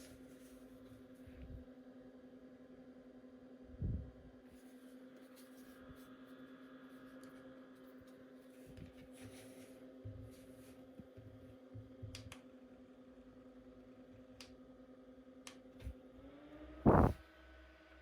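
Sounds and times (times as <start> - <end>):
faint steady hum: 16.8 - 17.2.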